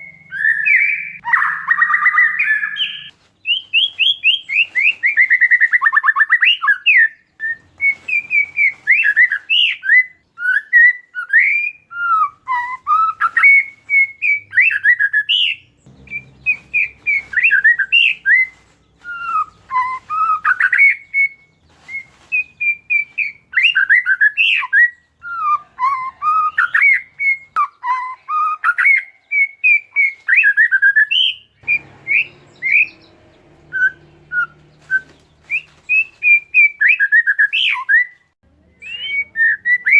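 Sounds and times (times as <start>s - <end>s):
songbird singing whistled notes: 0.0s - 39.9s.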